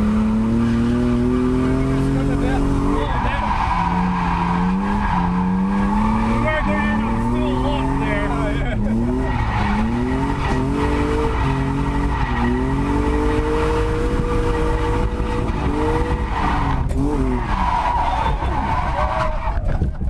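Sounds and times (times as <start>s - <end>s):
car engine revving hard: 0.0s - 19.5s
tyres squealing: 2.4s - 13.0s, 16.0s - 19.7s.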